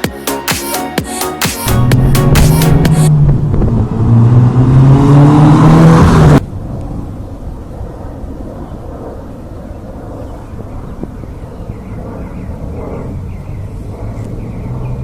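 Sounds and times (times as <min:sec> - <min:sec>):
car engine droning: 0:01.8 - 0:06.5.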